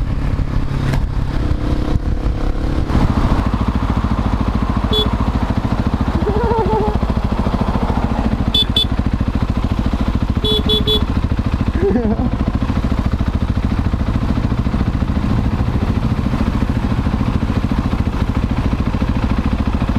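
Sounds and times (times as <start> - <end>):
motorcycle engine pulsing: 0.0 - 19.9
short high beeps: 4.9 - 5.1, 10.4 - 11.0.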